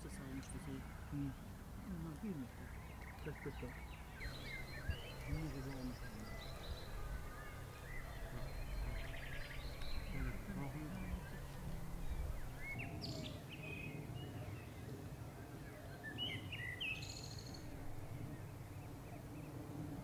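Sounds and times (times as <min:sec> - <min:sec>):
small birds chirping: 0:00.0 - 0:20.0
low background rumble: 0:04.0 - 0:12.9.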